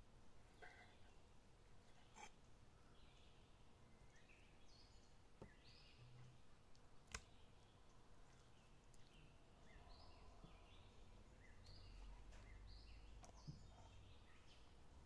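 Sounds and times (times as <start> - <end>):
quiet outdoor background noise: 0.0 - 15.0
small bird chirps: 8.4 - 14.8.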